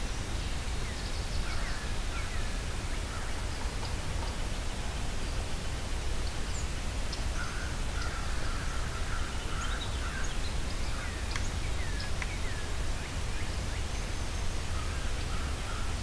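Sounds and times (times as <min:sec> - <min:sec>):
wild birds calling: 0:07.2 - 0:16.0.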